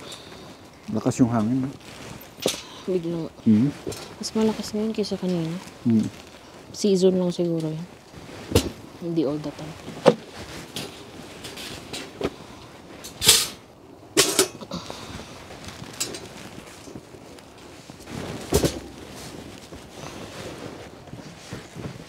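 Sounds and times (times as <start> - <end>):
sharp flaps and knocks: 18.0 - 19.9.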